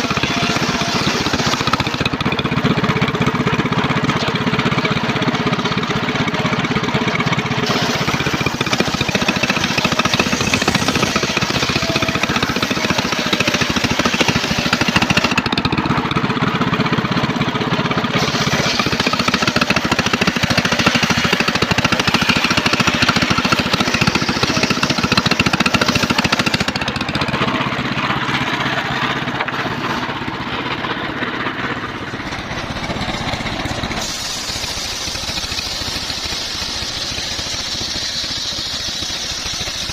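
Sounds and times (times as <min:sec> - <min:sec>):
engine-driven sawmill sawing timber: 0:00.0 - 0:39.9.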